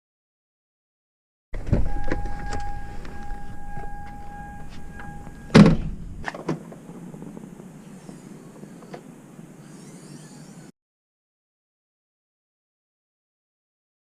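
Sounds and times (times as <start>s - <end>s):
vehicle door shutting: 1.6s - 6.7s
electronic warning tone: 1.8s - 5.6s.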